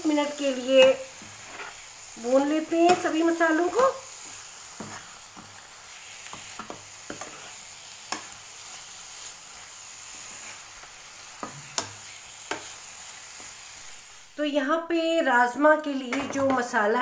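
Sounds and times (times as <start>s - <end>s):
vegetables sizzling in a frying pan: 0.0s - 17.0s
steel ladle scraping and knocking pan: 2.8s - 5.6s, 6.3s - 7.5s.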